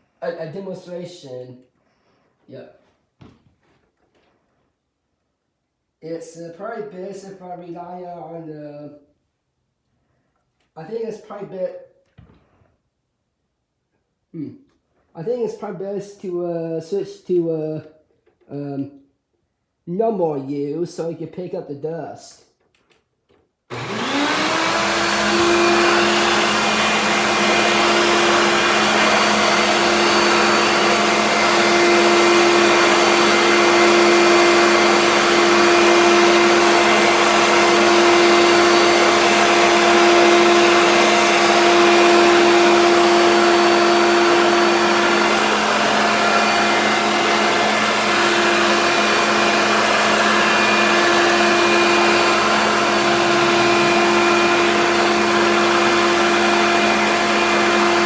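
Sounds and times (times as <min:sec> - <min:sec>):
vacuum cleaner running: 0:23.7 - 0:58.0.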